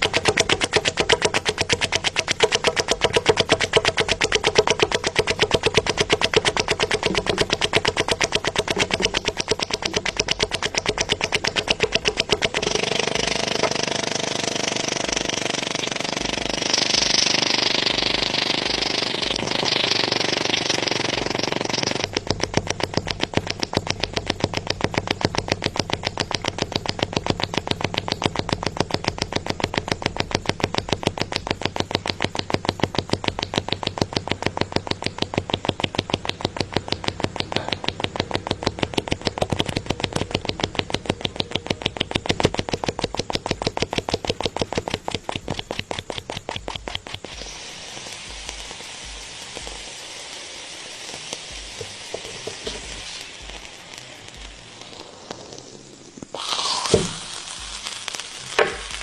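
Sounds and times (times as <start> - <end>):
steady rushing noise: 0.0 - 20.1
engine pulsing rapidly: 0.0 - 50.0.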